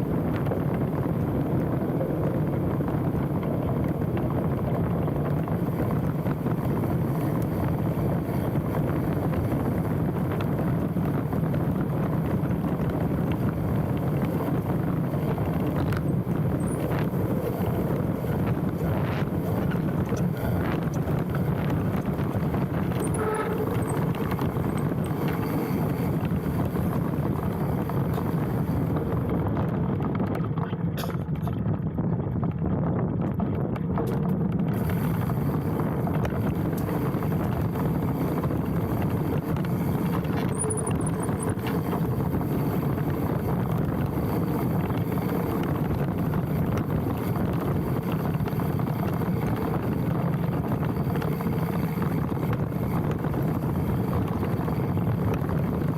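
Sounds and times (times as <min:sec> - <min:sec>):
bike tyre and frame rattle: 0:00.0 - 0:55.9
wind rushing on microphone: 0:00.0 - 0:55.9
high brake squeals: 0:22.9 - 0:25.9, 0:40.4 - 0:41.7.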